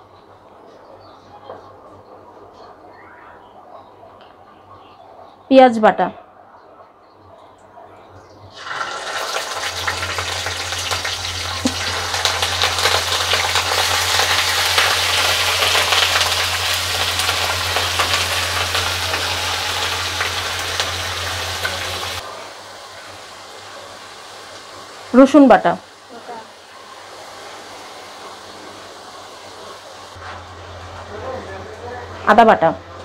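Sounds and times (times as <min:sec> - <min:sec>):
paste sizzling in hot oil: 0:08.5 - 0:22.2.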